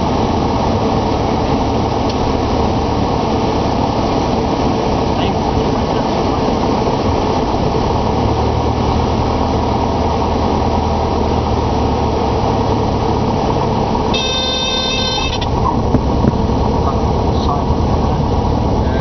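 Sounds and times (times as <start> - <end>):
aircraft engine and propeller drone: 0.0 - 19.0
stall warning horn buzzing: 14.0 - 15.6, 18.7 - 19.0.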